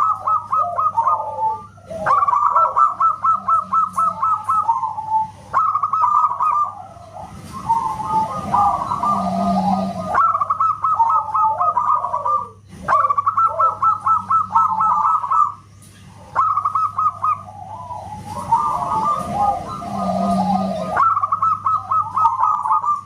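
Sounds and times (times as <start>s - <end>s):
dove cooing: 0.0s - 23.0s
faint low hum: 0.0s - 23.0s.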